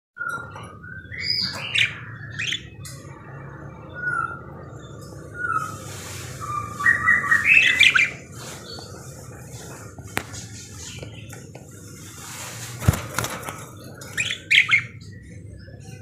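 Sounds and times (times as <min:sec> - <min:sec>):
budgerigar chirping and warbling: 0:01.0 - 0:02.8, 0:06.4 - 0:08.8, 0:14.0 - 0:15.3.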